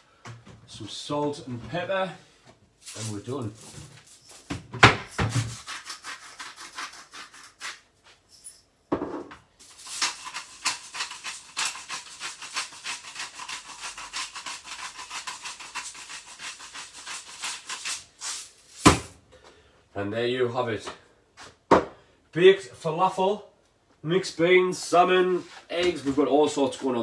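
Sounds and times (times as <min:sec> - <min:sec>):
pepper mill grinding: 0:02.8 - 0:04.4, 0:09.6 - 0:18.9.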